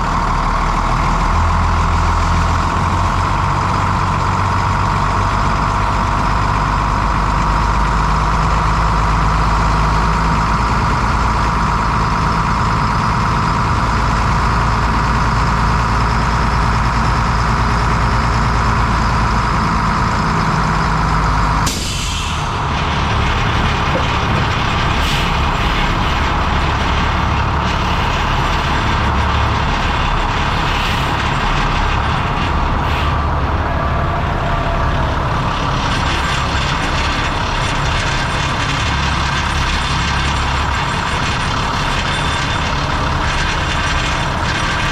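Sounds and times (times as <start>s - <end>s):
truck diesel engine idling: 0.0s - 44.9s.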